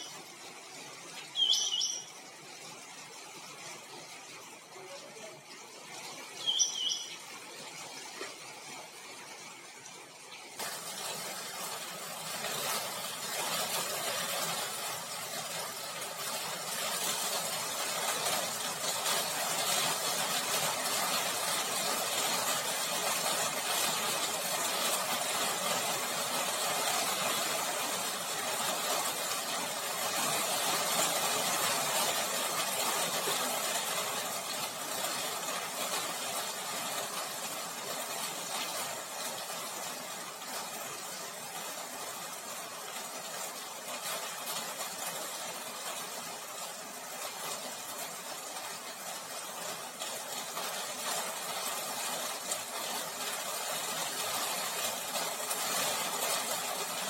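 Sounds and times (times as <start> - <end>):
bird chirp: 1.2 - 2.2, 6.4 - 7.3.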